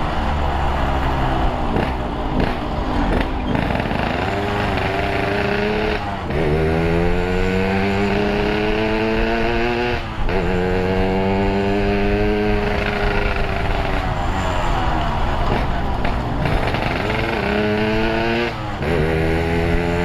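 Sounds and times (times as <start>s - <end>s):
two-stroke motorcycle engine revving: 0.0s - 20.0s.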